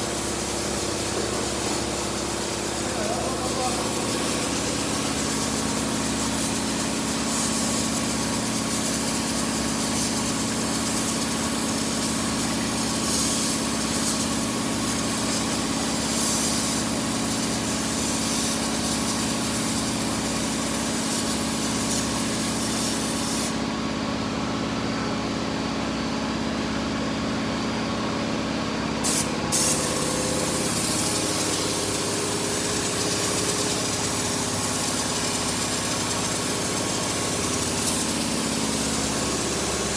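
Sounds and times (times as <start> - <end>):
motor running: 0.0 - 7.2, 29.8 - 39.9
spray gun hissing: 0.0 - 23.6, 29.0 - 39.9.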